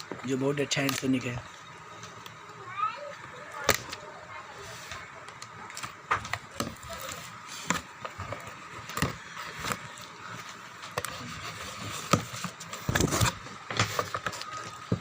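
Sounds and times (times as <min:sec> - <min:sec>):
packaging rustling: 0:04.6 - 0:15.0.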